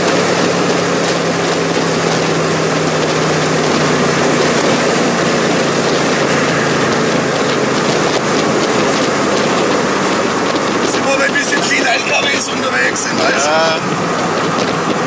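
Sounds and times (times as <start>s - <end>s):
car engine cruising: 0.0s - 15.0s
wind rushing: 0.0s - 15.0s.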